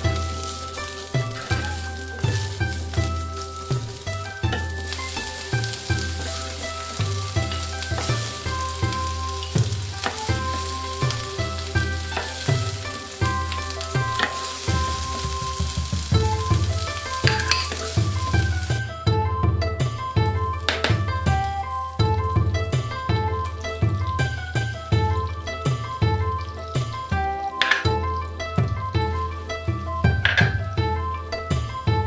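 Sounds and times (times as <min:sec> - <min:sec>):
vegetables sizzling in hot oil: 0:00.0 - 0:18.8
wooden spatula scraping wok: 0:00.0 - 0:18.9
background music: 0:00.0 - 0:32.0.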